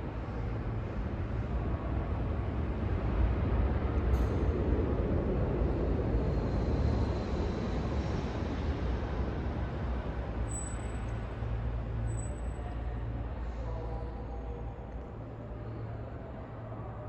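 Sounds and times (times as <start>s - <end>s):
air rushing from fan blades: 0.0s - 10.5s.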